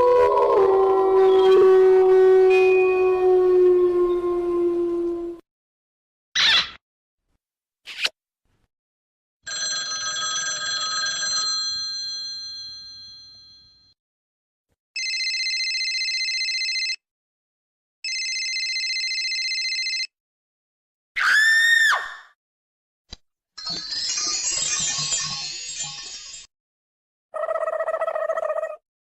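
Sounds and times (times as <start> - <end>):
telephone ringing: 9.5 - 13.8, 15.0 - 17.0, 18.0 - 20.1
chime-like tone: 23.6 - 26.5.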